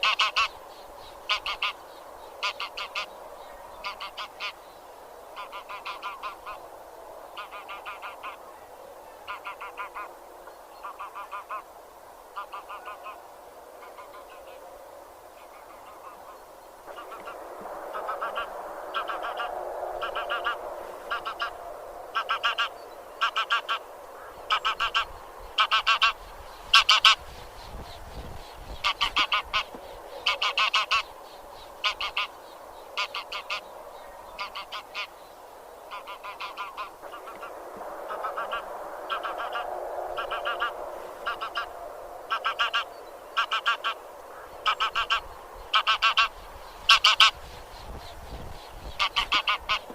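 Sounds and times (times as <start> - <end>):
geese honking: 0.0 - 0.6, 1.2 - 1.8, 2.4 - 3.2, 3.8 - 4.6, 5.4 - 6.6, 7.4 - 8.4, 9.2 - 10.1, 10.8 - 11.7, 12.4 - 13.2, 15.5 - 27.2, 28.7 - 31.1, 31.8 - 32.4, 33.0 - 33.7, 34.4 - 35.1, 35.9 - 47.4, 48.9 - 49.9
low background noise: 0.0 - 49.9.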